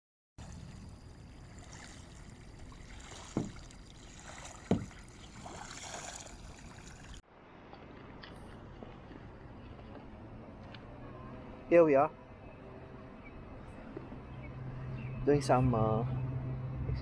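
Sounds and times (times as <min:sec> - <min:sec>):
paddle splashing water: 0:00.4 - 0:07.2
water wash: 0:00.4 - 0:07.2
dull knocks: 0:03.3 - 0:03.7, 0:04.6 - 0:05.1.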